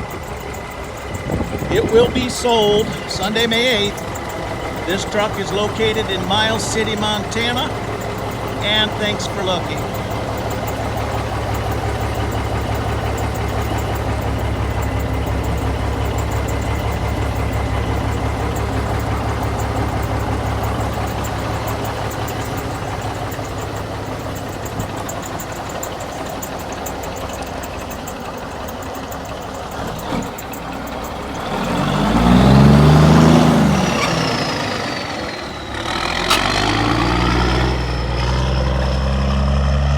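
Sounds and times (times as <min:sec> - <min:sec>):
engine revving: 0:00.0 - 0:39.9
truck diesel engine idling: 0:00.0 - 0:39.9.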